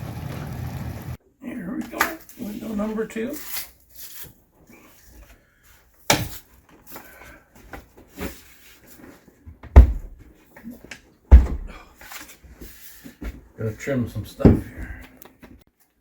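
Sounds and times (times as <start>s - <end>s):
wooden boards knocking and thumping: 9.6s - 10.2s, 11.3s - 11.8s.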